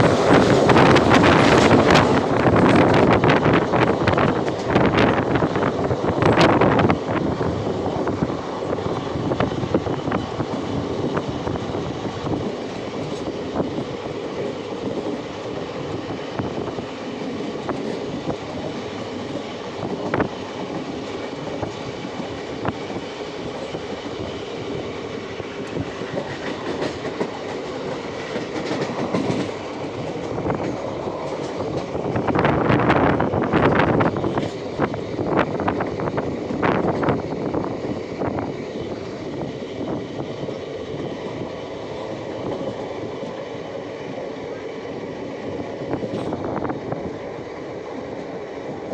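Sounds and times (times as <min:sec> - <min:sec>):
train rumbling along track: 0:00.0 - 0:48.9
wheels clicking over rail joints: 0:25.4 - 0:37.4.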